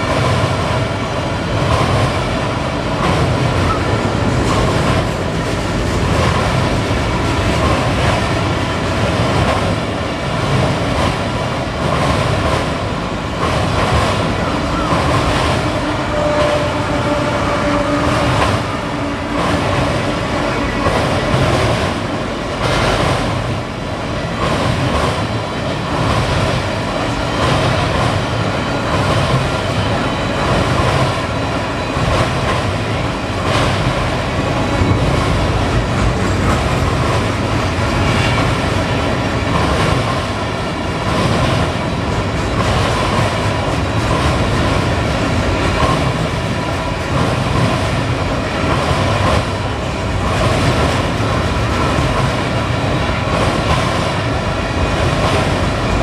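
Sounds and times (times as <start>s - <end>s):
train wheels clacking over rail joints: 1.6s - 23.5s, 24.2s - 56.0s.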